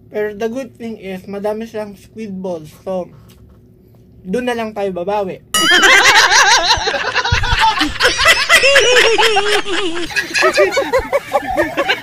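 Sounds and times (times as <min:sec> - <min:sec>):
high-pitched giggling and laughter: 0:05.6 - 0:12.0.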